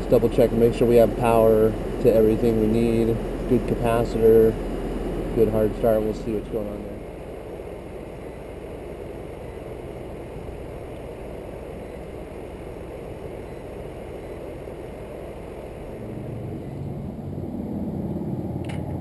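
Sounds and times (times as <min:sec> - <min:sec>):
air conditioner fan running: 0:00.0 - 0:19.0.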